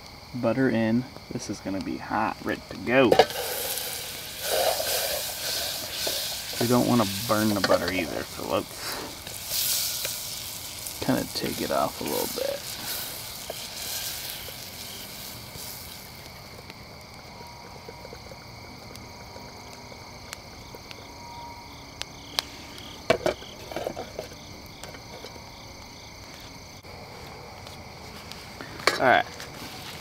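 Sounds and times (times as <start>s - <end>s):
insects calling: 0.0s - 30.0s
butter sizzling in a pan: 3.1s - 19.5s.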